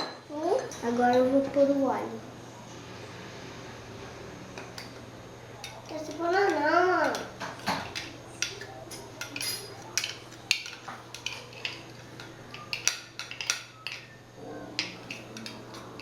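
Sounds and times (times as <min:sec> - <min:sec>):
utensils clinking against bowl: 0:00.0 - 0:01.4, 0:05.6 - 0:16.0.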